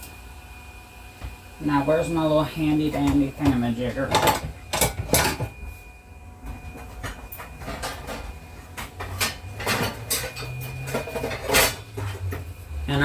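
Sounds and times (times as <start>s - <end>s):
drawers and utensils rattling: 3.0s - 5.6s, 6.9s - 12.5s.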